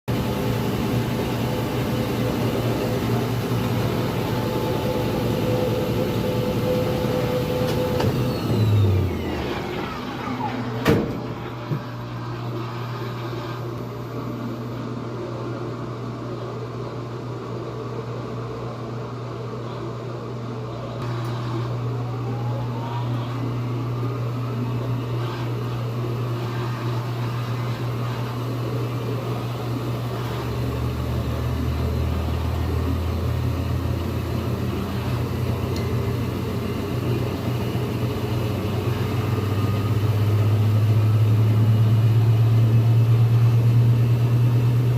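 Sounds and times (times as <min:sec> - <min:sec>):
falling whine: 0:00.1 - 0:14.7, 0:21.0 - 0:44.9
washing machine spinning: 0:00.1 - 0:19.4, 0:20.0 - 0:44.9.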